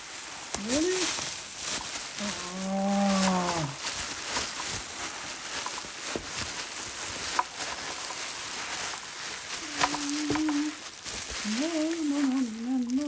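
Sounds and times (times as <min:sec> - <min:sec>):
packaging clicks and rustles: 0:00.0 - 0:13.0
person humming: 0:02.2 - 0:03.8, 0:09.6 - 0:10.8, 0:11.4 - 0:13.0.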